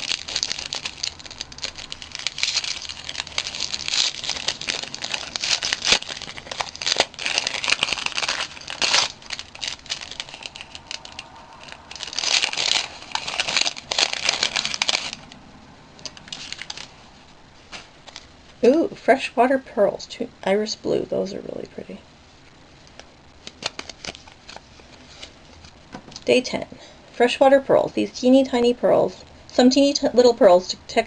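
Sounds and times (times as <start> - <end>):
gift wrapping crinkling and tearing: 0.0 - 18.4, 22.8 - 25.9.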